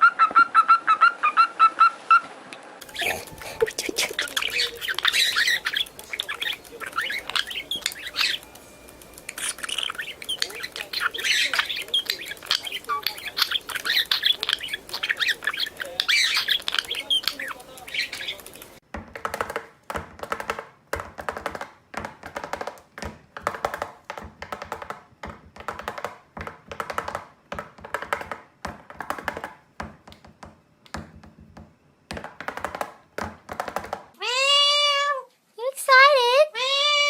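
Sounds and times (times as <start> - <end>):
parrot squawking: 0.0 - 18.8, 34.2 - 35.1.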